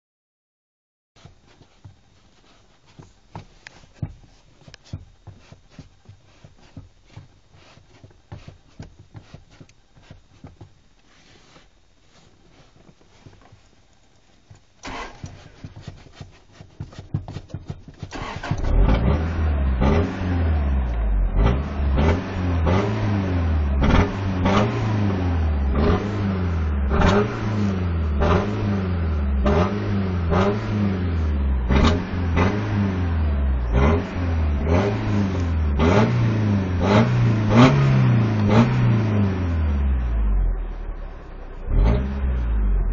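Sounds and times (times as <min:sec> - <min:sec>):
faint clicks and taps: 0:01.2 - 0:14.8
pickup engine cranking and revving: 0:14.8 - 0:15.4, 0:18.0 - 0:42.9.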